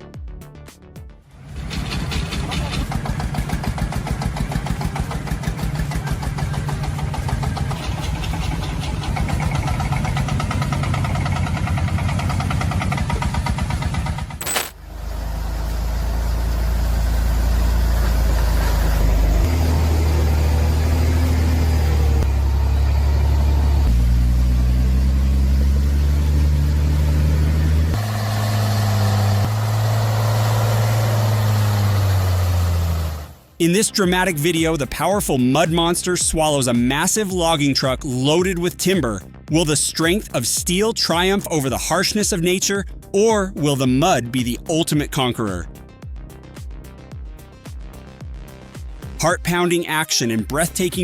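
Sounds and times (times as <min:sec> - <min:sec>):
truck engine drone: 0:01.3 - 0:33.6
truck engine under load: 0:01.4 - 0:33.6.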